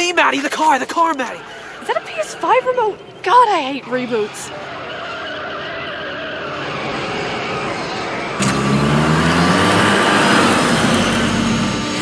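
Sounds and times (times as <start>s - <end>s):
car engine revving: 0.5s - 12.0s
loud rushing noise: 6.4s - 12.0s.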